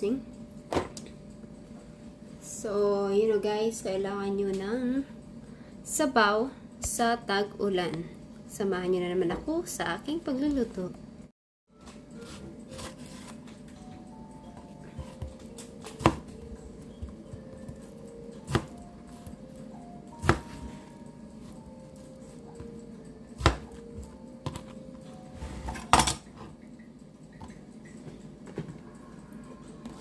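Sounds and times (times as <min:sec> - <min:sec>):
soft background music: 0:00.0 - 0:30.0
kitchenware clinking and knocking: 0:25.6 - 0:26.4.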